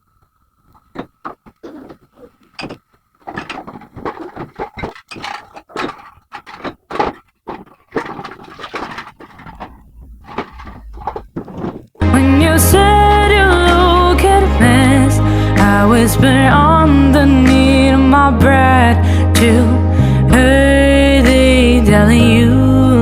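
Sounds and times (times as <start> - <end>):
objects knocking and clinking: 0.9 - 12.0.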